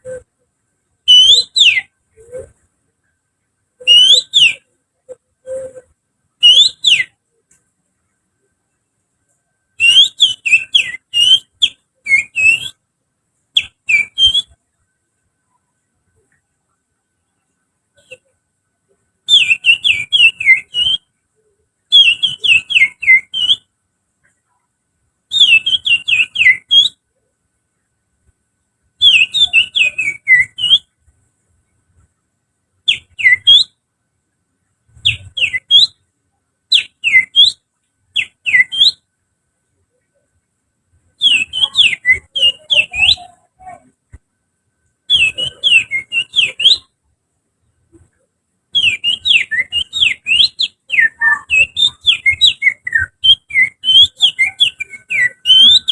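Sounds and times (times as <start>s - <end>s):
finger whistling birdsong: 1.1s - 2.6s, 3.8s - 4.7s, 5.4s - 7.2s, 9.8s - 12.8s, 13.6s - 14.6s, 19.3s - 21.1s, 21.9s - 23.7s, 25.3s - 27.0s, 29.0s - 31.0s, 32.9s - 33.8s, 34.9s - 36.0s, 36.7s - 37.6s, 38.2s - 39.1s, 41.2s - 43.4s, 45.1s - 47.0s, 48.8s - 55.9s.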